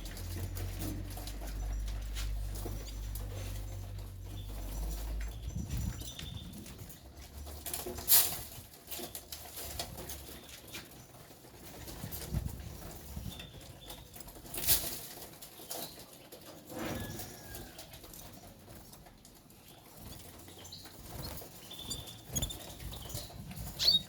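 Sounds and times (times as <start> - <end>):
birds chirping faintly: 12.8 - 24.0
wing flutters: 20.0 - 24.0.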